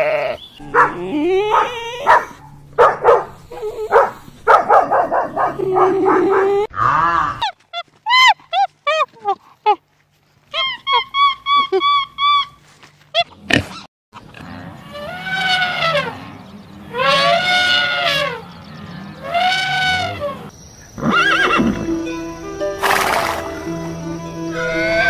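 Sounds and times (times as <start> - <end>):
animal yelps: 0.0 - 2.4, 16.9 - 18.5, 19.2 - 21.8
long rising and falling animal calls: 14.9 - 25.0
horse whinnying: 21.0 - 21.9, 22.8 - 23.6
background music: 21.1 - 25.0.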